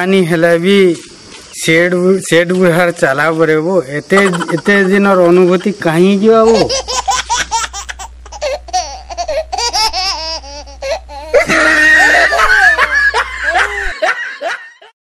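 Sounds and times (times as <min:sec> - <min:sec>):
steady low hum: 0:01.0 - 0:14.6
people laughing heartily: 0:04.2 - 0:05.8, 0:11.3 - 0:14.9.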